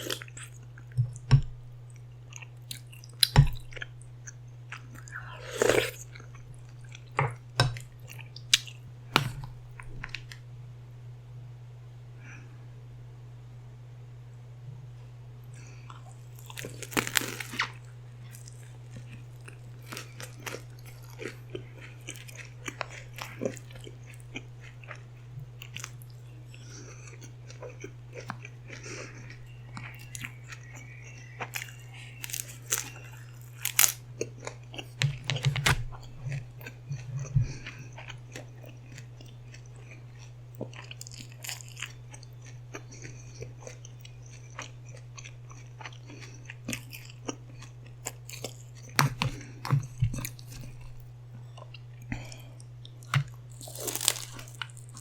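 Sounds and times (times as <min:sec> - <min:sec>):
chewing and crunching food: 0:00.0 - 0:10.4, 0:15.4 - 0:55.0
low hum: 0:00.0 - 0:38.8.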